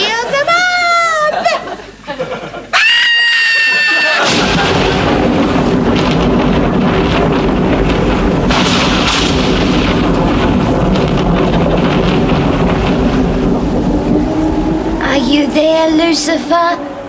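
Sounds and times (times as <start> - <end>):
motorcycle engine rumbling: 4.3 - 17.0.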